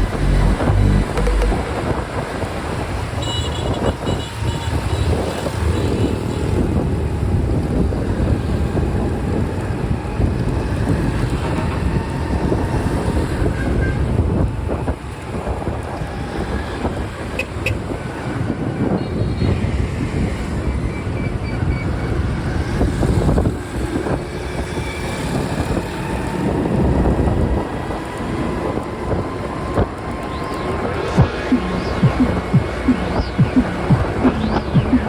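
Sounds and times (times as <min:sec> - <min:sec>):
highway traffic rumble: 0:00.0 - 0:35.0.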